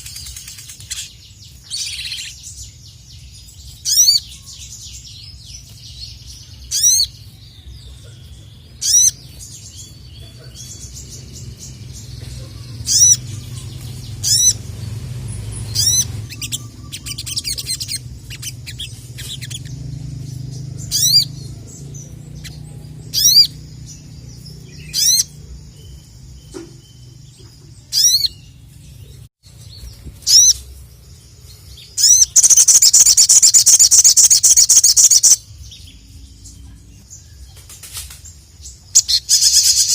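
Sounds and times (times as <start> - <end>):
rapid high bird chatter: 0.0 - 39.9
bird calling sharp notes: 12.6 - 19.8.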